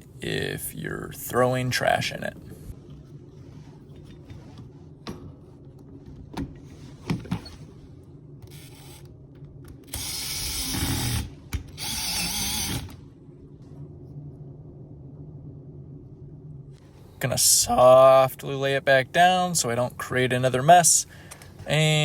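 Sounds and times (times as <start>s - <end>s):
power drill running: 9.9s - 13.0s.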